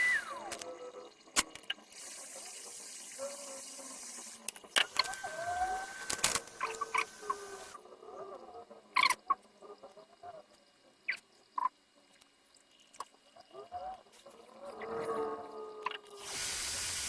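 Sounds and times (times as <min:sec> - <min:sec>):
faint wavering chirps: 0:00.0 - 0:01.2.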